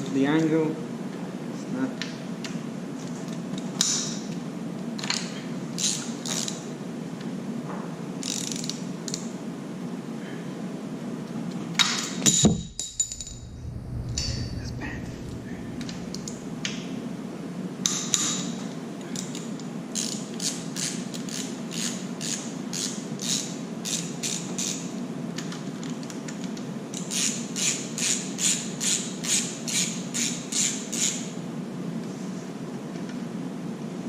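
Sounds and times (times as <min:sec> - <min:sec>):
steady low hum: 0:12.3 - 0:17.9.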